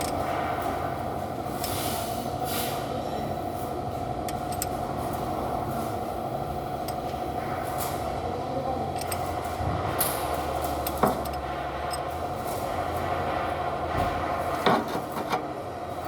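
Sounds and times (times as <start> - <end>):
mechanical running hum: 0.0 - 16.0.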